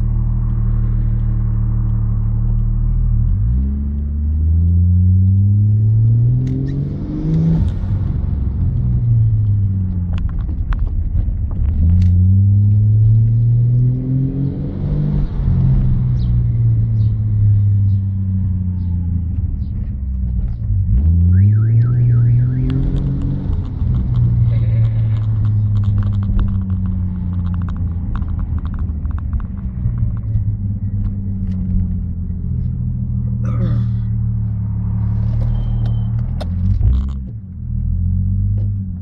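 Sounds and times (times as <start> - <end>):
turbocharged car engine accelerating: 0.0 - 39.0
car alarm warbling: 21.3 - 23.1.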